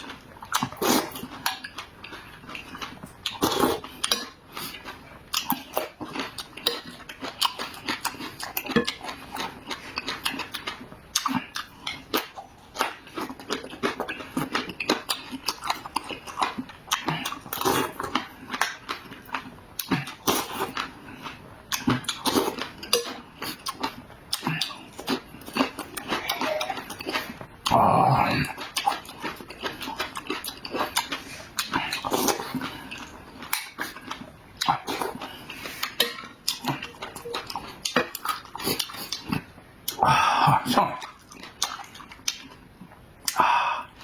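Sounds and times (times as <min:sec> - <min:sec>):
mouth chewing and smacking: 0:00.0 - 0:44.0.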